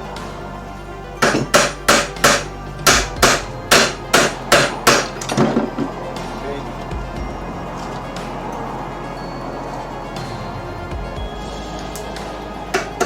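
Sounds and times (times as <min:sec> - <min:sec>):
hammer striking metal: 0:01.2 - 0:06.0, 0:12.7 - 0:13.0.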